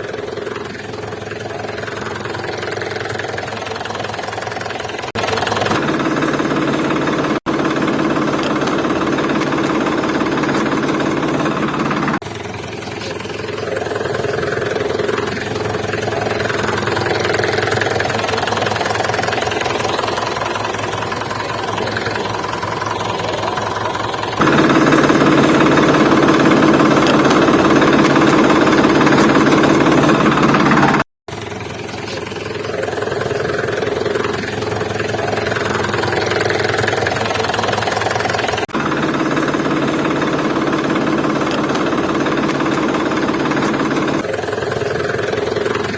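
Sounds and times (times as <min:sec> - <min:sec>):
heavy vehicle engines running: 0:00.0 - 0:45.9.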